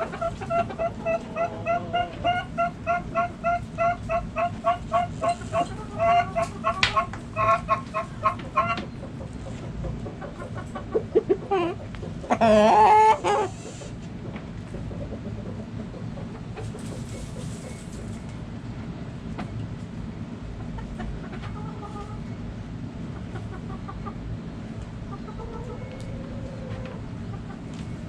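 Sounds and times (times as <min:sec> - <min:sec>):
chicken loud wavering call: 0:00.0 - 0:08.8, 0:11.2 - 0:13.9
chickens clucking: 0:00.0 - 0:18.4, 0:19.3 - 0:28.0
low steady background hum: 0:00.0 - 0:28.0.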